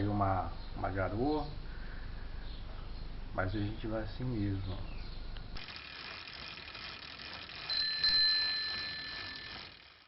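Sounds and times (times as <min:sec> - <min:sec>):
faint outdoor background noise: 0:00.0 - 0:10.0
bicycle bell ringing: 0:05.6 - 0:10.0.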